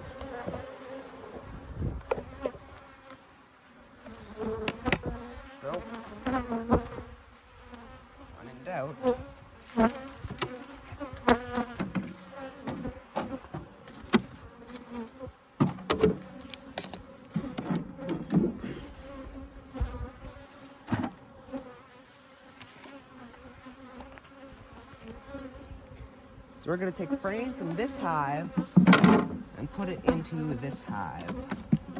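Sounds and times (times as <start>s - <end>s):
bees buzzing: 0.0s - 3.2s, 3.8s - 31.9s
wooden hive frames knocking: 28.0s - 31.9s.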